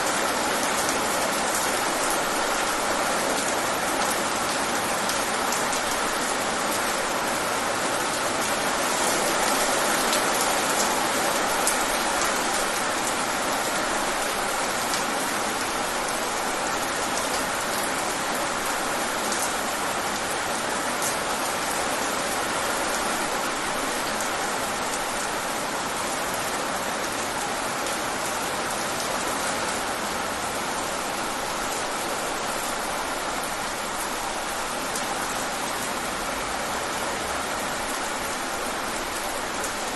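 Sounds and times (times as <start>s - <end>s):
steady rain on a surface: 0.0s - 39.9s.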